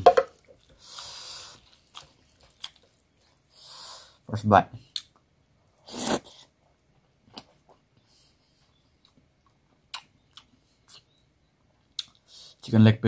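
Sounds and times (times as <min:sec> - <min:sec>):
person chewing: 0:00.4 - 0:03.4, 0:08.6 - 0:11.2, 0:11.8 - 0:12.3
wet mouth clicks and smacks: 0:09.9 - 0:11.2.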